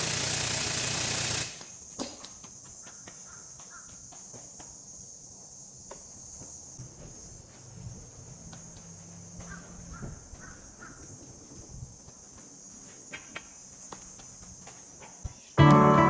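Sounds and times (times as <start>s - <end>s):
high-pitched hiss: 0.0s - 2.7s
crow cawing: 3.2s - 4.0s.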